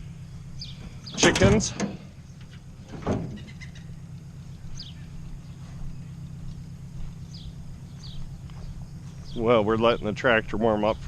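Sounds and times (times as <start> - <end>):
tractor engine idling: 0.0 - 11.0
chicks peeping: 3.3 - 10.1.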